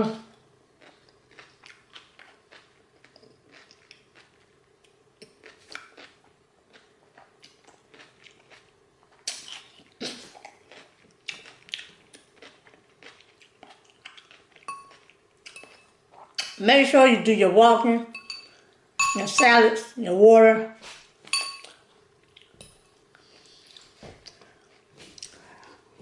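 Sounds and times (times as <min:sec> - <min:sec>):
chewing crunchy salad: 0:00.8 - 0:16.6, 0:21.6 - 0:25.9.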